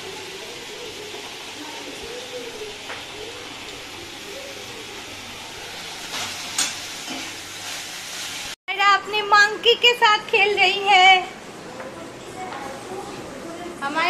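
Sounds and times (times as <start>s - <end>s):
gravy sizzling in a pan: 0.0s - 8.6s.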